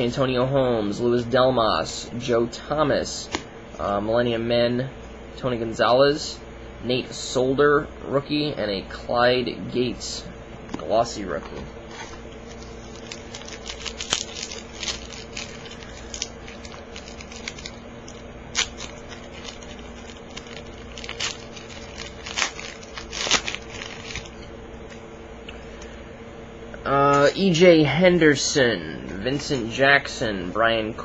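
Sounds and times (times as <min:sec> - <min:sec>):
faint steady hum: 0:00.0 - 0:31.0
foil wrapper crinkling and tearing: 0:12.3 - 0:24.5.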